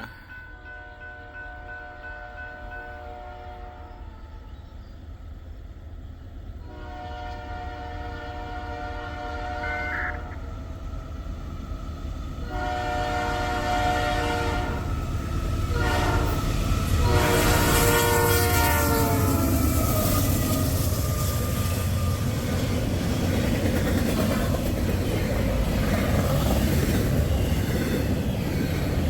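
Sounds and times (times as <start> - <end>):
low train rumble: 0.0 - 29.0
locomotive air horn blasts: 0.7 - 3.9, 6.6 - 10.4, 12.4 - 14.9, 15.7 - 19.8.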